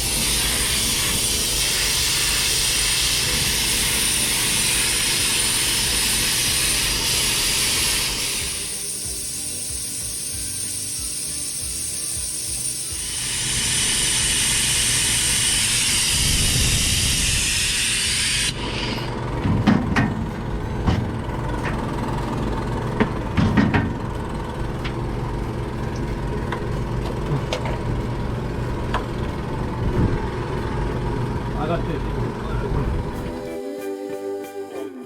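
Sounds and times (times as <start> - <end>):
loud hiss: 0.0 - 19.2
diesel engine running: 11.8 - 33.4.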